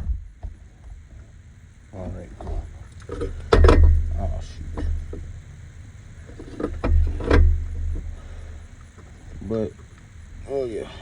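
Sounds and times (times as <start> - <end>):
heavy thumps: 0.0 - 1.1
tools knocking and clanking: 2.4 - 4.1.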